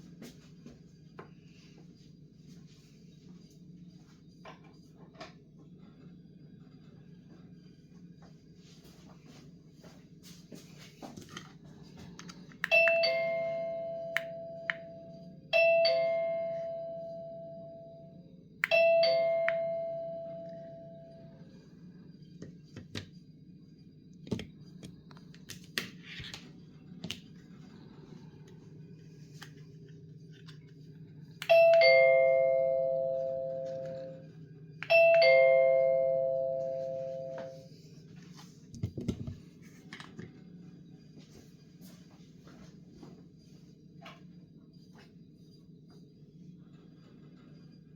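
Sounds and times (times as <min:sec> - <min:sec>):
two-note doorbell chime: 0:12.7 - 0:18.1, 0:18.7 - 0:21.2, 0:31.5 - 0:34.2, 0:34.8 - 0:37.7.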